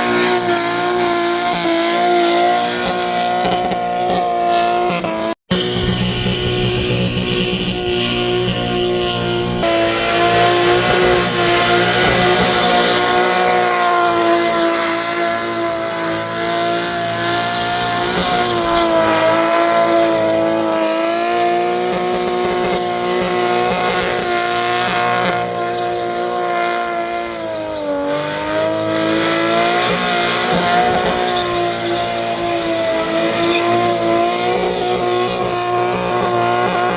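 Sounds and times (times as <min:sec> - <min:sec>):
car engine at high revs: 0:00.0 - 0:36.9
tyres squealing: 0:23.6 - 0:36.9.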